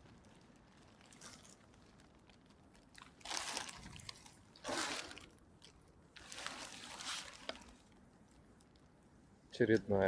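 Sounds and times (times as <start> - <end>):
fish splashing in water: 2.9 - 7.8.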